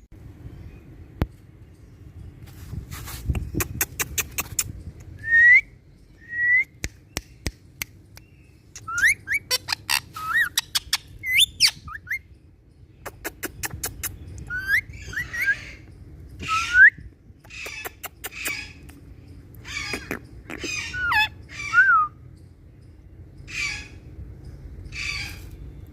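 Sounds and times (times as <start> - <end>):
harsh parakeet calls: 8.8 - 12.3, 13.0 - 16.8, 17.4 - 21.8, 23.4 - 24.1, 24.8 - 25.6
parakeets whistling: 8.8 - 12.3, 14.5 - 18.8, 19.6 - 22.2.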